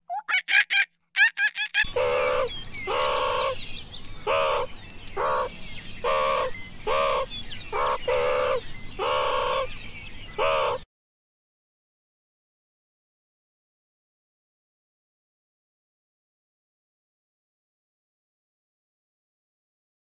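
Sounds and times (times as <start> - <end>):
animal call: 0.1 - 3.6, 4.2 - 9.7, 10.4 - 10.9
small birds chirping: 0.1 - 10.9.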